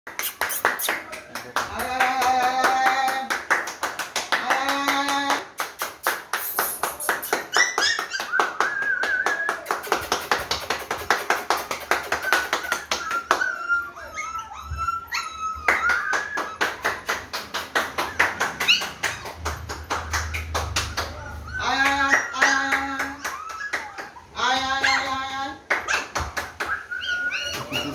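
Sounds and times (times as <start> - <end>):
puppy yips: 6.4 - 9.9, 11.9 - 19.6, 20.8 - 27.9
puppies whining: 6.9 - 10.1, 11.8 - 27.9.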